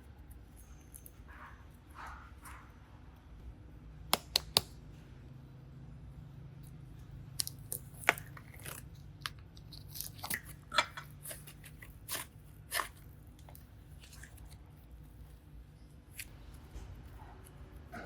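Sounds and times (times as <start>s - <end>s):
slime and clay crackling clicks: 4.1s - 4.8s, 7.4s - 14.6s.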